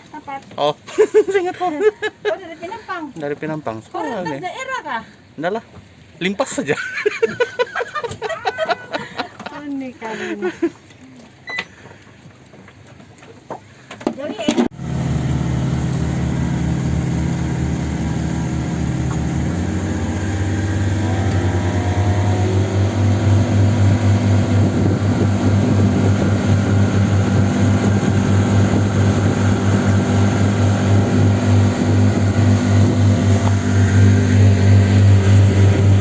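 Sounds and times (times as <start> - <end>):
vehicle engine running: 14.8 - 36.0.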